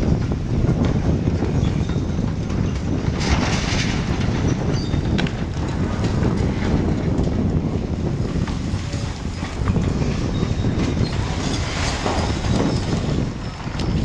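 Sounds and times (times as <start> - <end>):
heavy machinery rumble: 0.0 - 14.0
squeaks and knocks: 1.3 - 6.5, 8.5 - 14.0.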